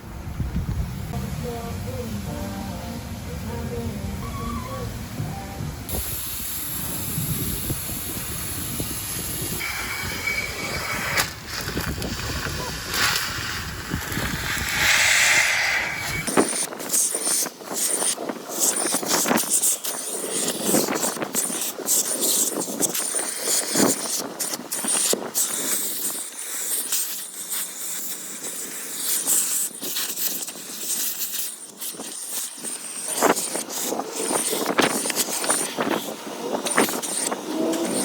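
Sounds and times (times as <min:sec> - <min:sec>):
vacuum nozzle scraping and clicking: 0:09.6 - 0:28.2, 0:28.9 - 0:38.0.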